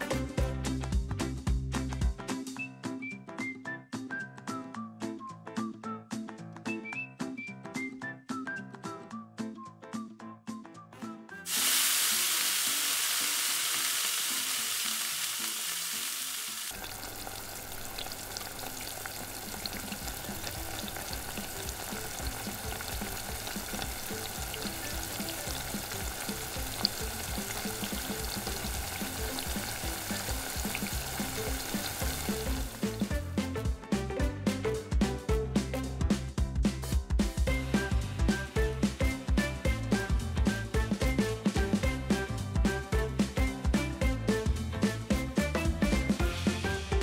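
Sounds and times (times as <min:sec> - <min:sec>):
loud hiss of oil: 0:11.5 - 0:16.4
fish frying in hot oil: 0:11.5 - 0:33.1.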